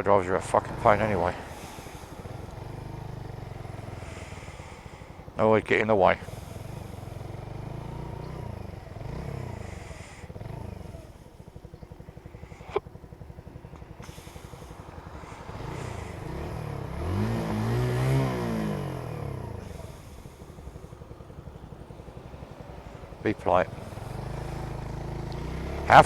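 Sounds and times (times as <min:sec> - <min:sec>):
passing engine rising and falling: 0:00.0 - 0:04.4, 0:11.8 - 0:20.8, 0:21.6 - 0:26.0
motorcycle engine running: 0:00.0 - 0:26.0
wind and road noise: 0:00.0 - 0:26.0.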